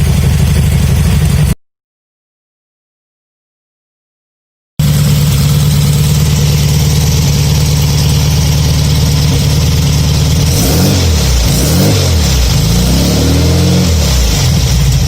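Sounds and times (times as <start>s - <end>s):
car engine idling: 0.0s - 1.6s, 4.8s - 15.0s.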